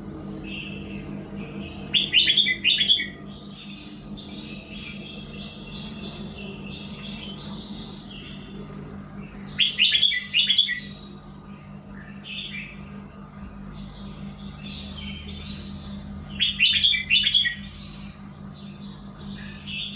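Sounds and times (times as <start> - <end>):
bird chattering: 0.4 - 11.2, 13.8 - 19.9
bird whistling song: 1.8 - 8.4, 9.3 - 11.2, 14.0 - 19.9.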